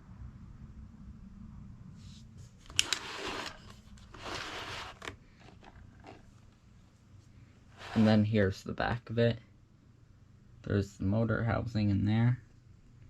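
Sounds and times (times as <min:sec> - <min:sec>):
scraping rustling: 0:02.1 - 0:06.4, 0:07.7 - 0:08.2.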